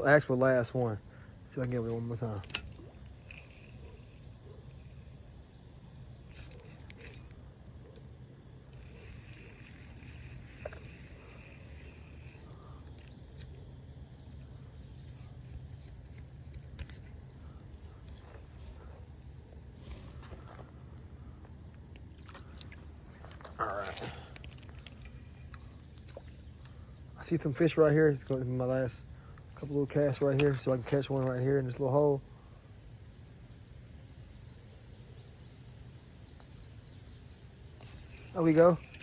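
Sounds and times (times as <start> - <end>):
insects chirring: 0.0 - 39.0
faint clicks: 24.3 - 26.8.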